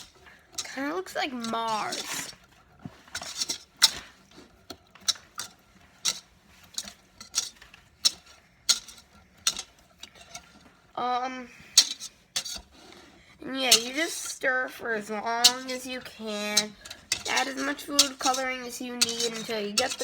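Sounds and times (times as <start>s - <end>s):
wire whisk clinking against bowl: 5.0s - 10.6s, 13.7s - 14.4s, 15.2s - 20.0s.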